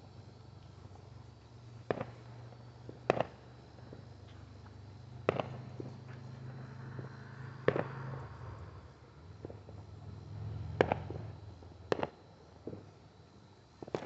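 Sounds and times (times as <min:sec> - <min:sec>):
steady low hum: 0:00.0 - 0:14.0
fireworks bangs with echo: 0:01.8 - 0:04.0, 0:05.2 - 0:06.0, 0:07.0 - 0:08.1, 0:10.7 - 0:11.3, 0:11.9 - 0:12.9, 0:13.8 - 0:14.0.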